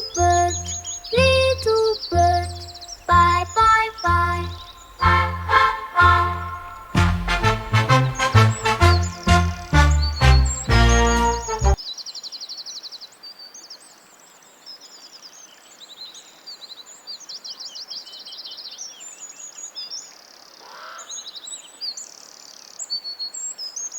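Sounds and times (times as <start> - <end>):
songbirds chirping and singing: 0.0 - 11.8.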